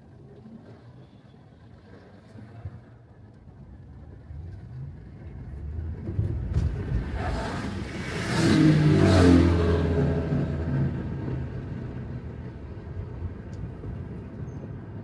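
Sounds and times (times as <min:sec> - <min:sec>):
vehicle passing on wet road: 0:05.7 - 0:13.2.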